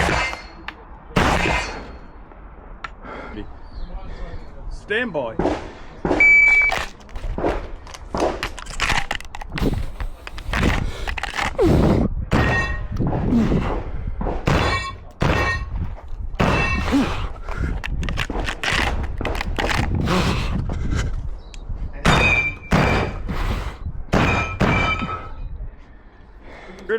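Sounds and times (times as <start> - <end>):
shotgun shots: 0.0 - 0.6, 1.2 - 2.1, 14.5 - 15.7, 16.4 - 17.4, 22.1 - 23.5, 24.1 - 25.4
shot timer beep: 6.2 - 6.7.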